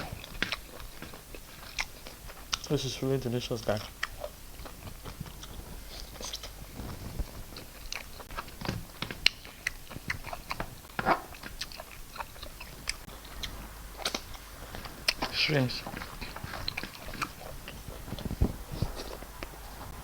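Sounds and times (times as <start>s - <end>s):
person chewing with wet smacks: 0.0s - 20.0s.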